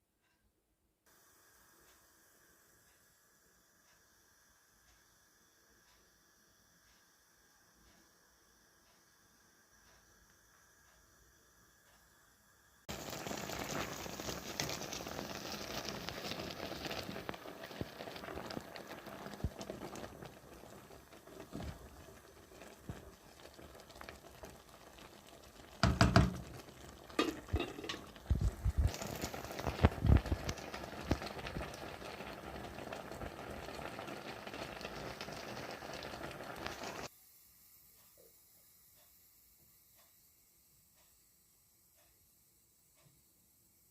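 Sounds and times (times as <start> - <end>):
food sizzling in oil: 12.8 - 37.1.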